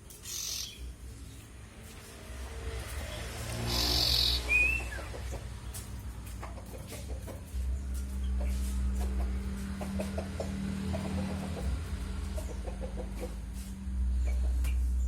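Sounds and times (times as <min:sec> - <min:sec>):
chickens clucking: 0:04.1 - 0:15.0.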